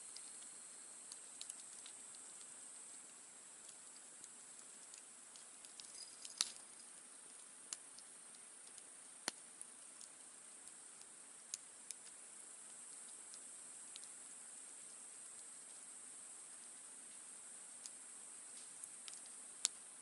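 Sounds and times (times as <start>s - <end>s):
campfire crackling and popping: 0.0s - 20.0s
steady high hiss: 0.0s - 20.0s.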